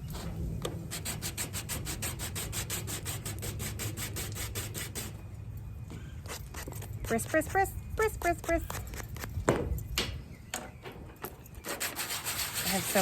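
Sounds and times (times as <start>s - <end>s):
sandpaper rasping on metal: 0.9s - 5.2s, 11.6s - 13.0s.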